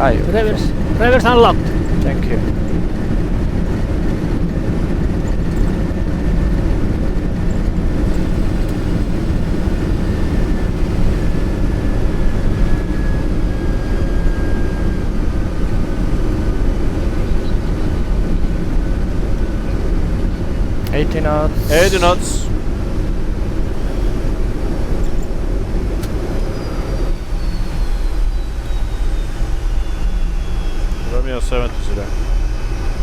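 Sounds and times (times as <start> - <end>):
jet engines in reverse thrust: 0.0 - 33.0
faint falling whine: 21.0 - 22.6.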